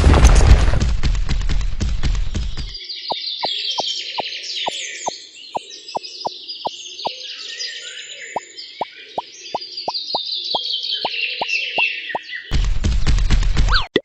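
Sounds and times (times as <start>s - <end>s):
loud crashing rumble: 0.0s - 1.3s
birds chirping: 2.7s - 12.5s.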